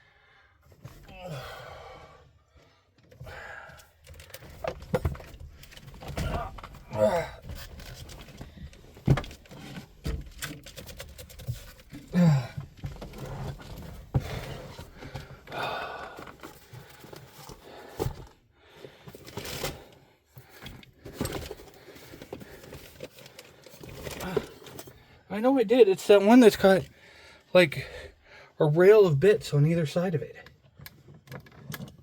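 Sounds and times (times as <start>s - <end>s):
person grunting: 1.1s - 2.0s, 6.2s - 7.4s, 12.2s - 12.5s
tools and plastic cases clattering: 3.0s - 25.0s, 30.5s - 32.0s.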